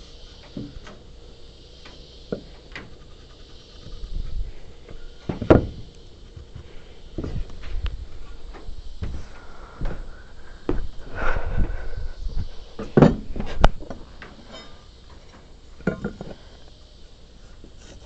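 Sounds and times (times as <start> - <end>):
wooden knocks and thuds: 5.3 - 5.9, 12.8 - 14.0.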